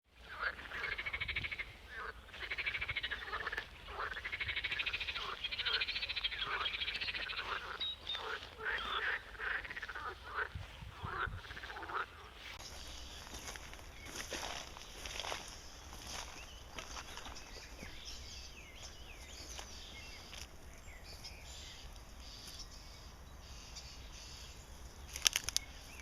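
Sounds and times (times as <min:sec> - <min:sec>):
frogs trilling: 0:00.1 - 0:20.7, 0:21.4 - 0:26.0.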